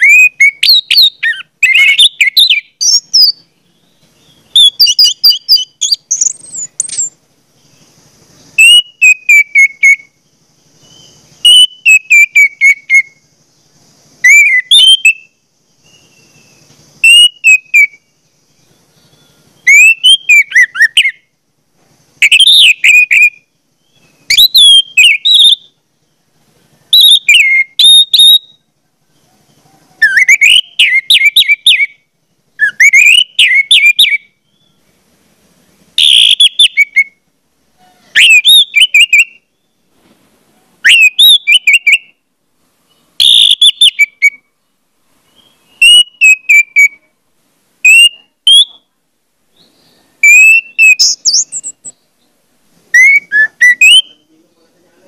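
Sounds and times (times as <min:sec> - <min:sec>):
bird singing whistled phrases: 0:00.0 - 0:21.3, 0:22.2 - 0:25.8, 0:26.8 - 0:28.7, 0:29.9 - 0:34.8, 0:36.0 - 0:37.2, 0:37.8 - 0:39.8, 0:40.8 - 0:42.2, 0:42.9 - 0:44.4, 0:45.3 - 0:47.1, 0:47.8 - 0:48.9, 0:49.5 - 0:52.0, 0:52.9 - 0:54.6.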